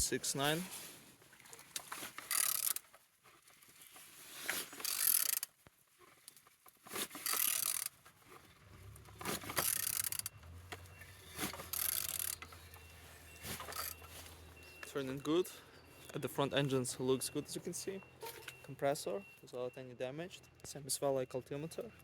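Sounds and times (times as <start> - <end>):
engine turned over by hand: 7.0 - 14.4.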